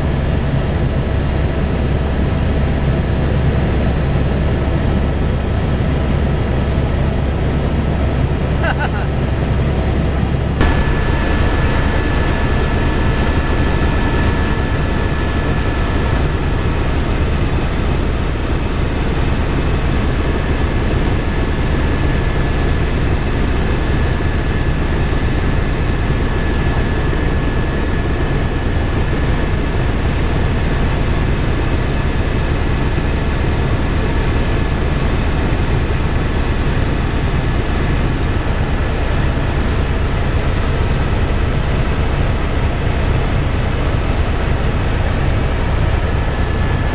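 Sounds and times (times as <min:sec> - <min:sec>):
helicopter rotor and engine: 0:00.0 - 0:46.9
thin high whine: 0:10.6 - 0:31.6.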